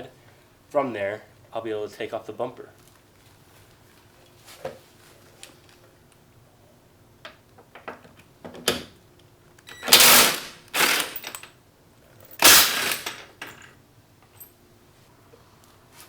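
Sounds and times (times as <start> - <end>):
impact wrench rattling: 9.8 - 11.5, 12.3 - 13.6.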